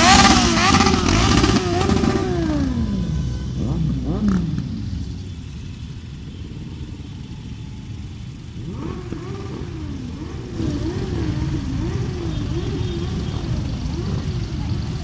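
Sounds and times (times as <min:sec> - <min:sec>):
wailing siren tone: 0:00.0 - 0:05.3
motorcycle engines rumbling: 0:00.0 - 0:15.0.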